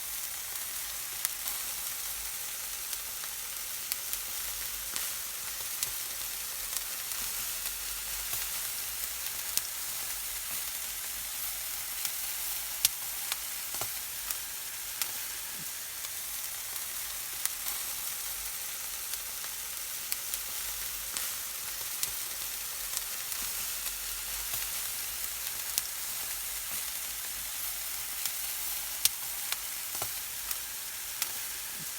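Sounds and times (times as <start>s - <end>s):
meat sizzling over wood fire: 0.0s - 31.9s
fire pops and crackles: 11.7s - 14.4s, 20.1s - 22.2s, 22.9s - 30.6s.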